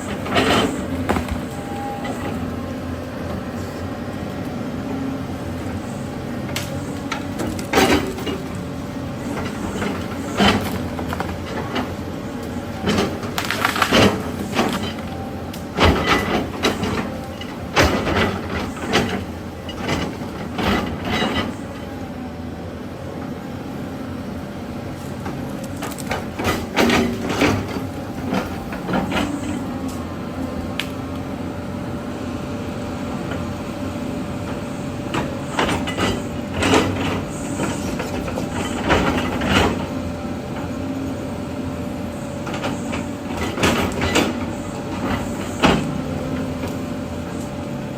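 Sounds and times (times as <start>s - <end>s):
diesel engine running: 0.0s - 47.9s
clanks and cracks of rock: 12.9s - 15.0s.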